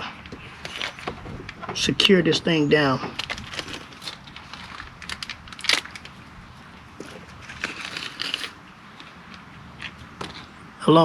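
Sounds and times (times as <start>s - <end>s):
small metal parts clicking and rattling: 3.5s - 4.8s, 7.6s - 8.6s.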